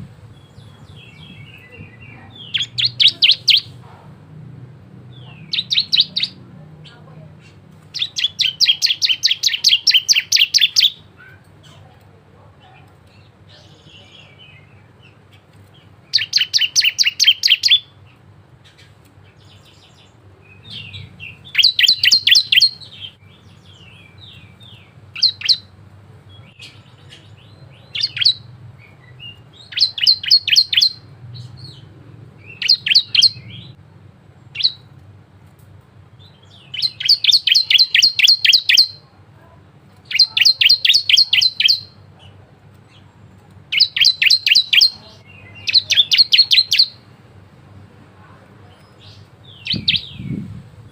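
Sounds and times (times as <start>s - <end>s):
bird singing high chirps: 0.3s - 3.8s, 5.1s - 11.4s, 15.8s - 18.0s, 18.6s - 25.7s, 26.3s - 33.8s, 34.5s - 34.9s, 36.1s - 39.1s, 40.0s - 42.1s, 43.7s - 47.1s, 48.8s - 50.5s.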